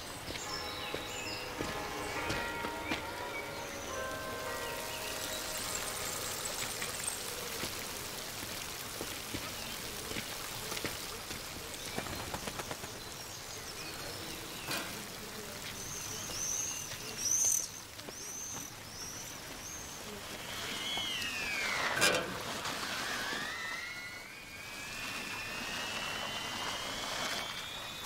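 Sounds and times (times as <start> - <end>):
bird chirping: 0.0 - 7.8, 11.8 - 21.9
background hiss: 0.0 - 22.7.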